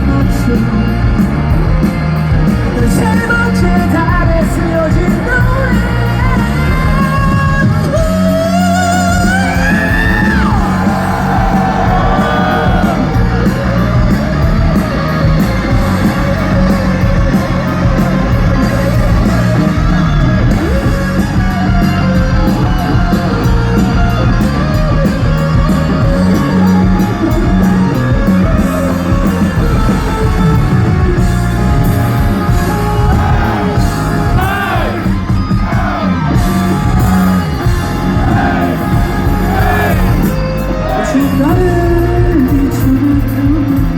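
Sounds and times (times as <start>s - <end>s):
bass guitar: 0.0s - 43.9s
drums: 0.0s - 43.9s
electric guitars: 0.0s - 43.9s
person singing and yelling: 32.7s - 36.4s, 38.2s - 43.1s.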